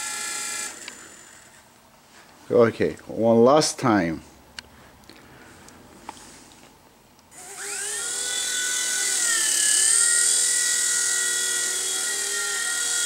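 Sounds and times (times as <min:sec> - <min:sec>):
rc helicopter motor whine: 0:00.0 - 0:01.6, 0:07.3 - 0:13.0.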